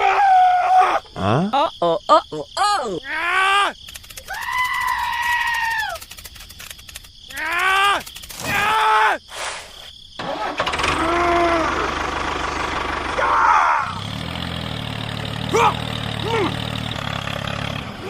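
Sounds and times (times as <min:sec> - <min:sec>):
person exclaiming: 0:01.2 - 0:06.0, 0:07.3 - 0:09.2, 0:10.9 - 0:11.9, 0:15.5 - 0:16.6
engine running: 0:10.2 - 0:18.0.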